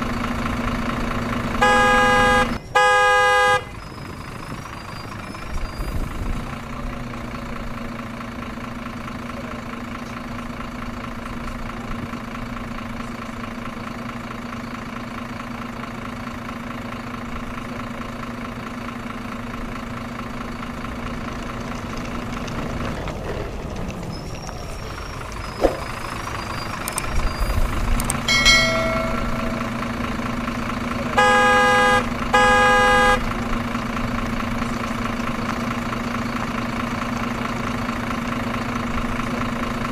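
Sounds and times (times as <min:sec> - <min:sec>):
truck engine running: 0:00.0 - 0:39.9
truck horn honking: 0:01.6 - 0:03.9, 0:28.3 - 0:33.7.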